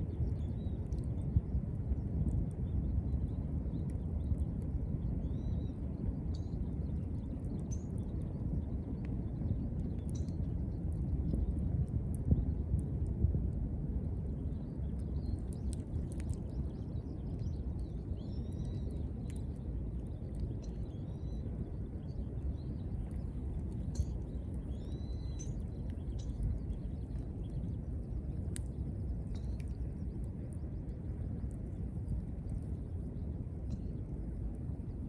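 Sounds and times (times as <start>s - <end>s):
small birds chirping: 14.3s - 35.0s
fire crackling and popping: 15.4s - 16.7s, 23.0s - 32.8s
wood fire rumbling: 23.0s - 34.9s.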